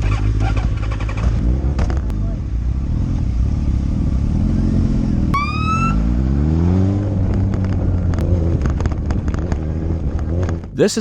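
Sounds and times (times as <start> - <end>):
motorcycle engine accelerating: 0.0 - 10.8
short high rising tone: 5.4 - 6.2.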